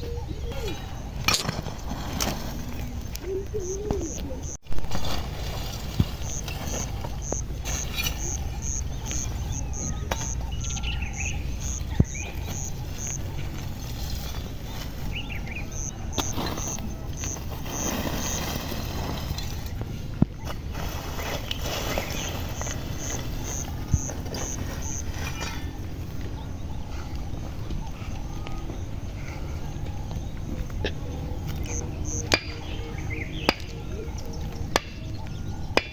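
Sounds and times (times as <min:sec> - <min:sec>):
bird calls: 0:00.0 - 0:01.2, 0:02.1 - 0:18.6, 0:19.5 - 0:35.9.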